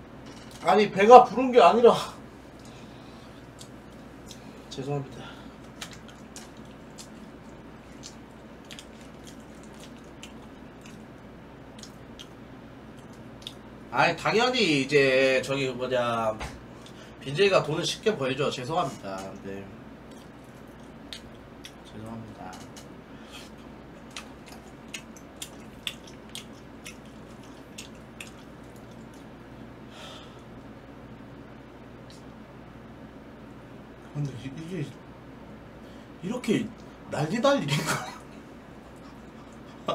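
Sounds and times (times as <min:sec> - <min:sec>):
wet squishy chewing: 0:05.6 - 0:13.6, 0:20.0 - 0:21.9, 0:24.0 - 0:29.4.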